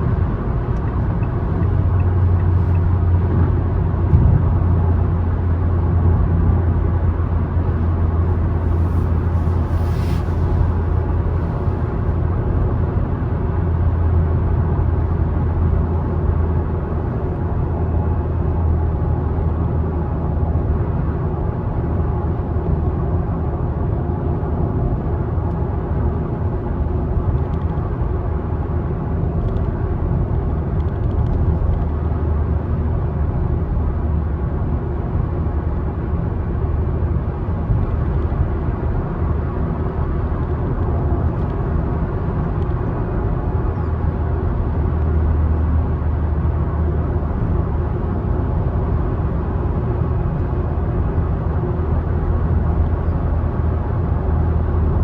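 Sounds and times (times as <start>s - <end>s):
tyre and road noise: 0.0s - 13.8s
car engine hum: 0.0s - 21.1s.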